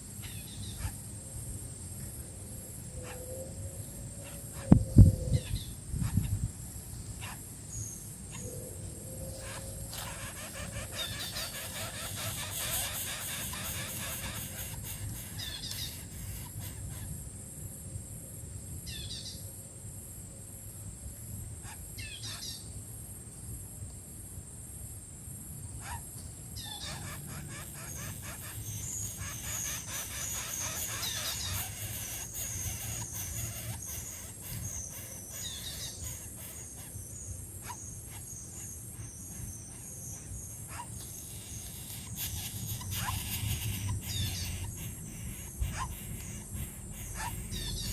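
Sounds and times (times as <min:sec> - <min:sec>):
birds chirping: 0:07.2 - 0:17.2, 0:25.8 - 0:47.9
high twittering: 0:09.4 - 0:17.1, 0:26.6 - 0:36.9, 0:41.0 - 0:47.9.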